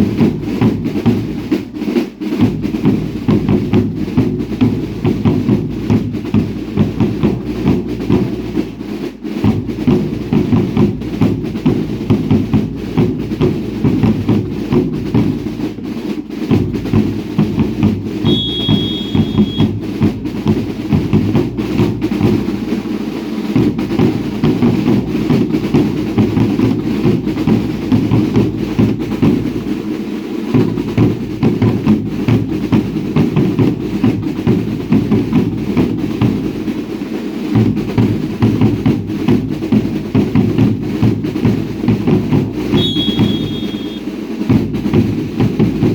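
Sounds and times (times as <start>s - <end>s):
snare drums: 0.0s - 45.9s
bass drums beating: 3.4s - 8.6s, 16.5s - 22.6s, 42.2s - 44.0s
short high whistle: 18.2s - 19.8s, 42.8s - 44.1s.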